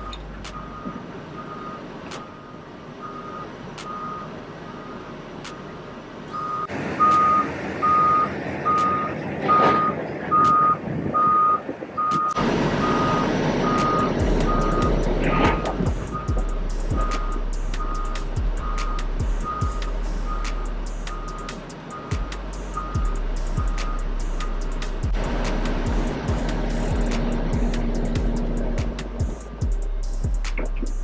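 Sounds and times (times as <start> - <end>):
diesel engine running: 0.0 - 31.0
backup alarm beeping: 6.4 - 19.7.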